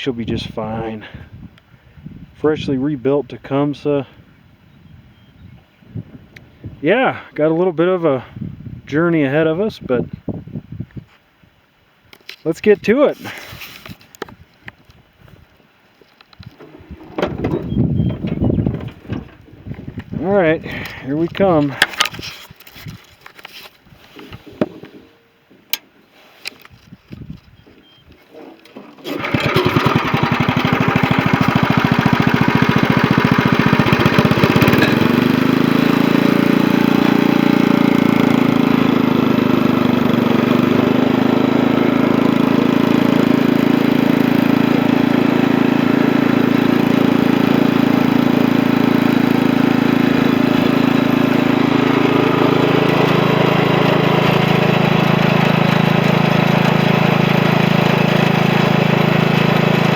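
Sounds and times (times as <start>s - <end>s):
riding tractor engine running: 16.5s - 22.2s, 28.4s - 59.9s.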